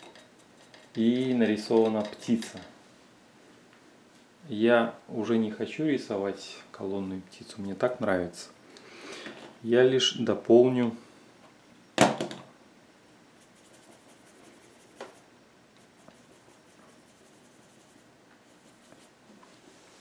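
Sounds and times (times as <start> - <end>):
paintbrush strokes on canvas: 13.4 - 20.0.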